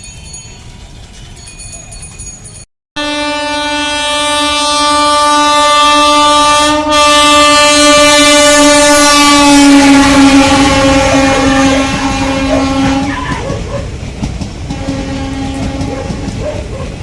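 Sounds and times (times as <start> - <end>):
train horn blast: 3.0 - 13.6, 14.7 - 16.4.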